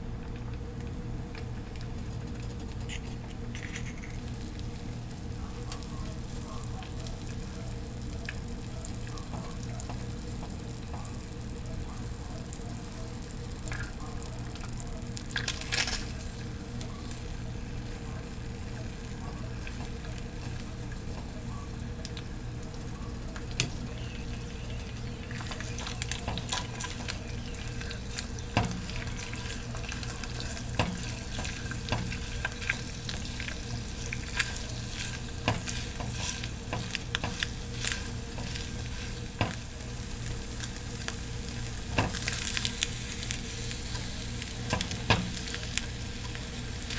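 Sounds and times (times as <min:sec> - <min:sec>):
steady low hum: 0:00.0 - 0:46.9
food sizzling in a pan: 0:02.2 - 0:46.9
utensil tapping against pan: 0:34.2 - 0:39.7.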